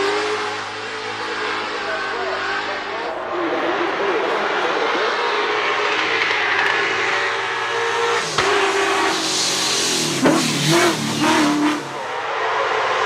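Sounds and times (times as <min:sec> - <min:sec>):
car engine revving: 0:00.0 - 0:13.0
tyres spinning hiss: 0:08.2 - 0:11.3.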